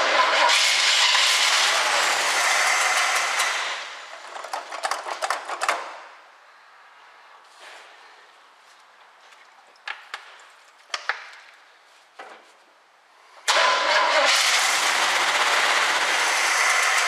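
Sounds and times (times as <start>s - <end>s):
car engine starting and running: 0.0s - 4.2s, 13.4s - 17.0s.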